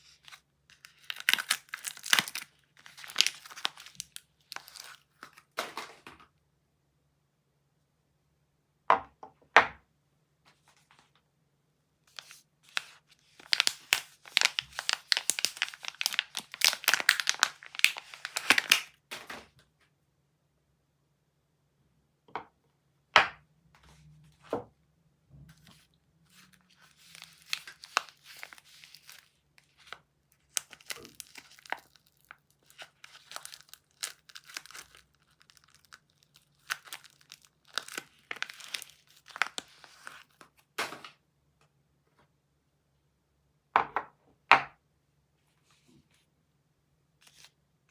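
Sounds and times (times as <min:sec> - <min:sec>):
packaging crinkling: 0:00.1 - 0:06.1, 0:12.1 - 0:19.3, 0:25.6 - 0:41.1.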